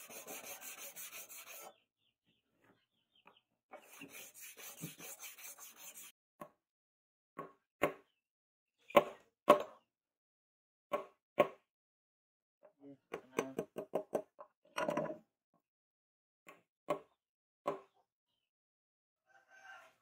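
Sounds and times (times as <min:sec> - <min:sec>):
rhythmic rubbing: 0:00.0 - 0:01.7.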